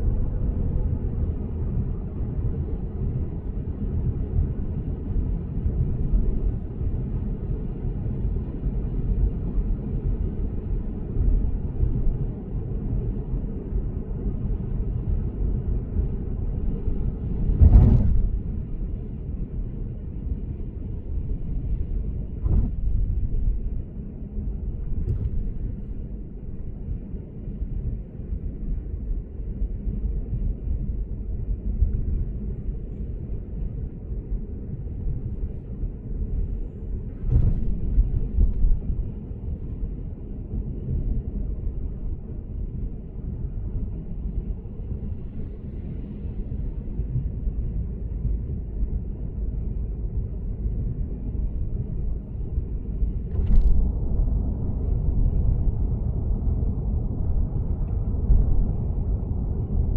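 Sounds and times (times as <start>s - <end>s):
road and tyre rumble: 0.0s - 59.9s.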